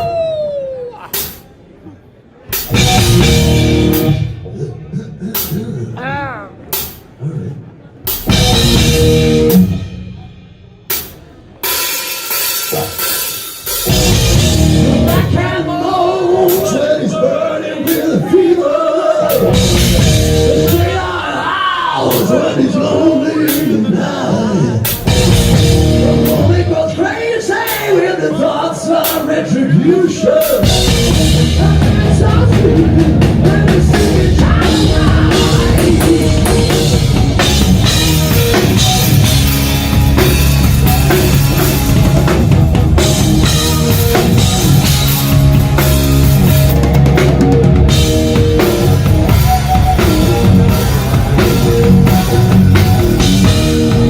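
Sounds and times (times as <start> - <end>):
rock band playing live: 2.4 - 4.4, 8.0 - 17.0, 19.2 - 22.6, 24.8 - 28.1, 30.3 - 54.0.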